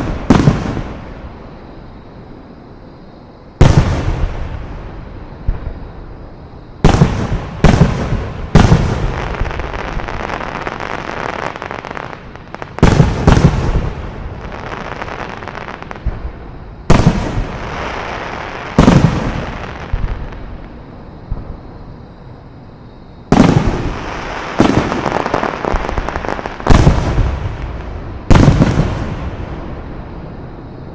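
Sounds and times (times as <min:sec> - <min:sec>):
fireworks bursting: 0:00.0 - 0:01.4, 0:03.6 - 0:05.9, 0:06.8 - 0:21.7, 0:23.3 - 0:30.1.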